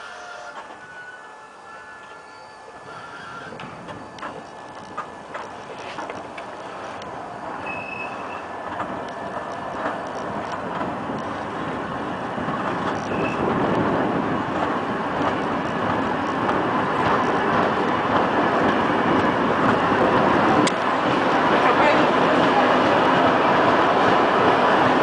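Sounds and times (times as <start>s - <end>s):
train running noise: 0.0s - 25.0s
brief high squeaks: 7.6s - 8.5s, 13.0s - 13.4s.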